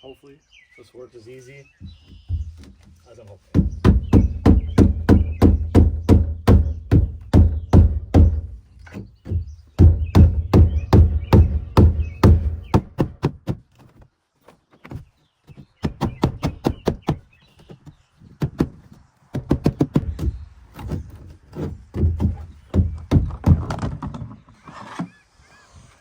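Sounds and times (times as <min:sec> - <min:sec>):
hammer pounding chisel: 0:03.5 - 0:13.6, 0:18.5 - 0:24.2.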